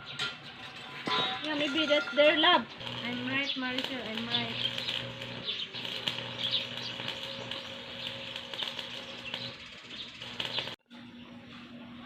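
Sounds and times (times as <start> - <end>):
small birds chirping: 2.3 - 10.8.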